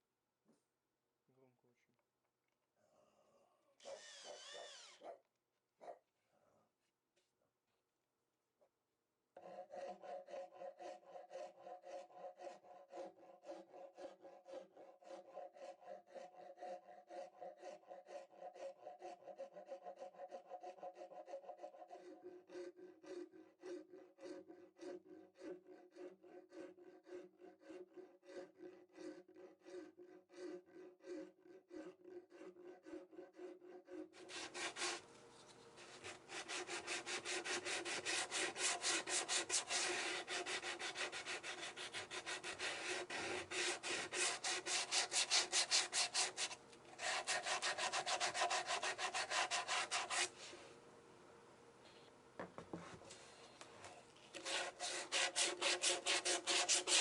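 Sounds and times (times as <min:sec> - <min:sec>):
wood being hand-sanded: 0:09.4 - 0:50.6, 0:54.3 - 0:57.0.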